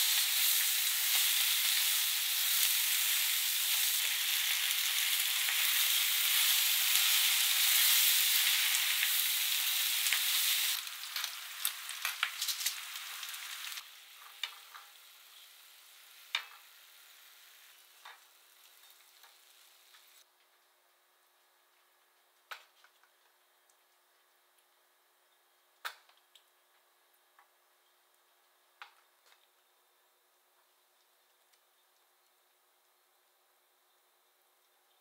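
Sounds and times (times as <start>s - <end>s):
food sizzling in frying pan: 0.0s - 20.2s.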